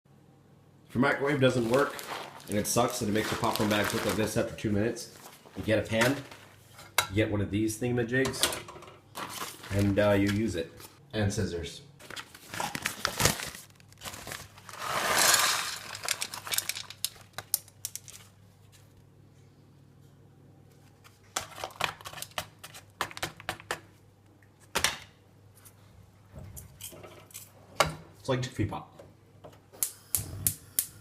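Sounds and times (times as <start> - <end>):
crinkly sheet crinkling: 1.2 - 6.6, 9.1 - 11.0, 12.0 - 19.0
sheet material tearing: 1.6 - 4.3.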